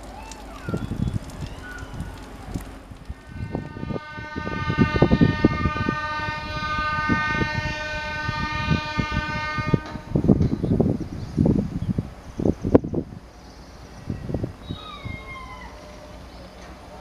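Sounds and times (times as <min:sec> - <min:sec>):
passing train rumbling: 0:00.0 - 0:17.0
train horn blast: 0:03.2 - 0:10.4.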